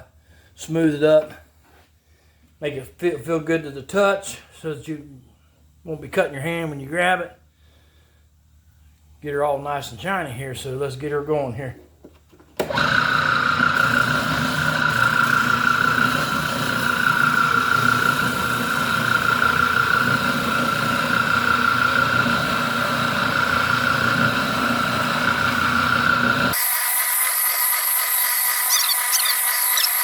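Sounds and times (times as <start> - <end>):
spindle sander whining: 12.6 - 30.0.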